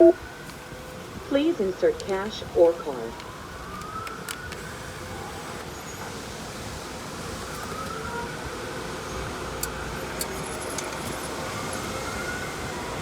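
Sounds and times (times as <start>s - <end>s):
faint whine: 0.0s - 0.4s.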